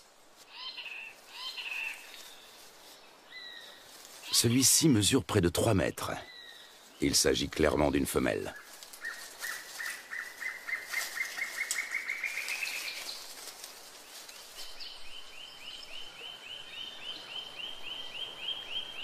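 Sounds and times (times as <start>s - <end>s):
birds calling repeated notes: 0.5s - 2.6s, 3.3s - 13.2s.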